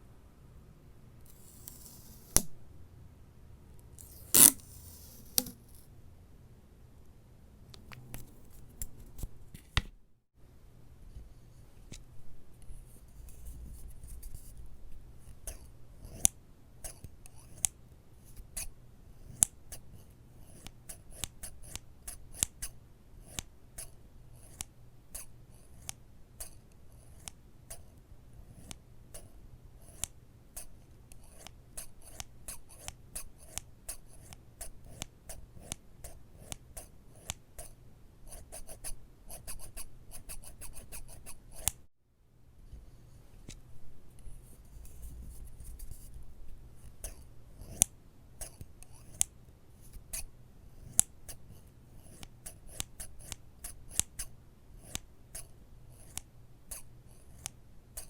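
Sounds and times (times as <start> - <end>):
soft scratching: 1.3 - 2.5, 4.0 - 5.9, 42.7 - 47.8.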